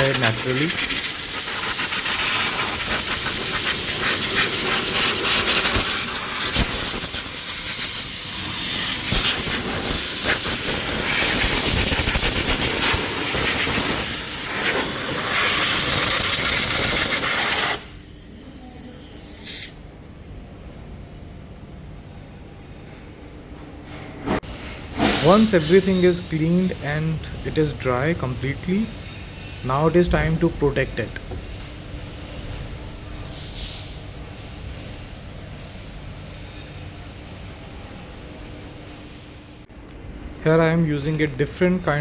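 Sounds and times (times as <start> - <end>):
compressed air hissing: 0.0 - 19.8, 33.3 - 34.2.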